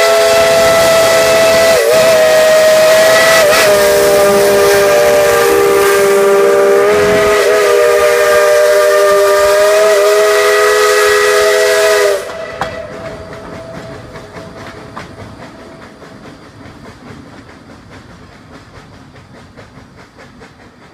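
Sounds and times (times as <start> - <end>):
steam locomotive chime whistle: 0.0 - 16.7
train running: 0.0 - 20.9.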